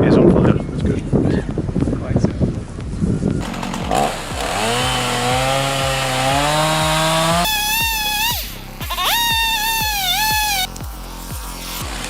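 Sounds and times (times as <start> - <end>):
background music with steady beat: 0.0 - 12.0
chainsaw engine running: 3.4 - 12.0
high-pitched saw whine: 3.4 - 12.0.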